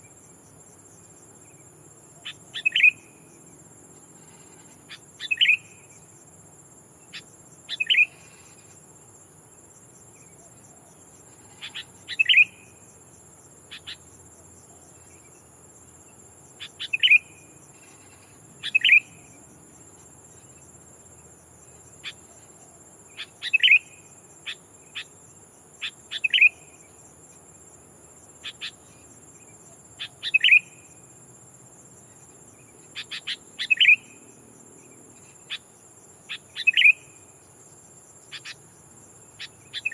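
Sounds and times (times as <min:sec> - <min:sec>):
high insect drone: 0:00.0 - 0:39.9
bulbul calling: 0:02.2 - 0:03.0, 0:04.9 - 0:05.7, 0:11.6 - 0:12.6, 0:16.6 - 0:17.2, 0:18.6 - 0:19.2, 0:23.2 - 0:23.9, 0:25.8 - 0:26.6, 0:30.0 - 0:30.7, 0:33.0 - 0:34.1, 0:36.3 - 0:37.0, 0:38.3 - 0:38.6, 0:39.4 - 0:39.9.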